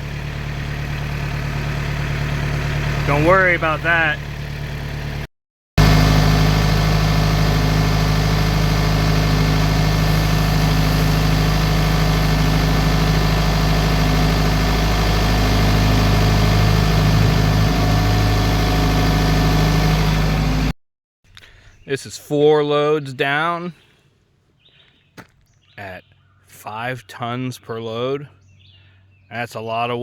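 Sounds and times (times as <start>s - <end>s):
heavy vehicle engine droning: 0.0s - 20.8s.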